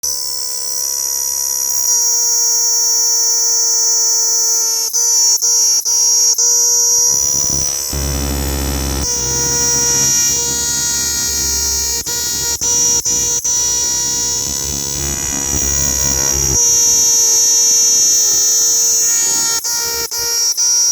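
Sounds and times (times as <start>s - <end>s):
cicada buzzing: 6.1s - 20.5s
low hum: 7.2s - 18.2s.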